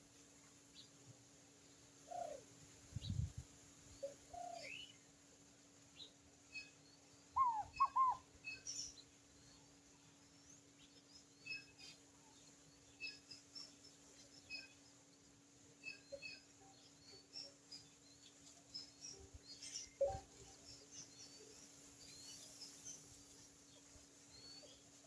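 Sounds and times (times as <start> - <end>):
birds chirping: 7.2 - 9.1
lower falling bird calls: 7.4 - 8.3
arched whistled bird calls: 7.4 - 8.9.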